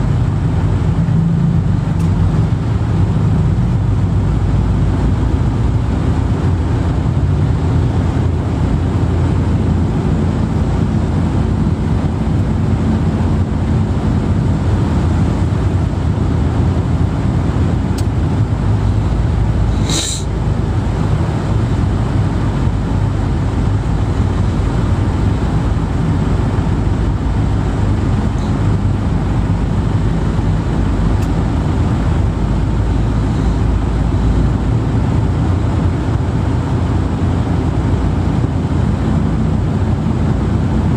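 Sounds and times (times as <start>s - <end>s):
low rumbling vehicle noise: 0.0s - 40.9s
brief high hiss: 19.7s - 20.3s.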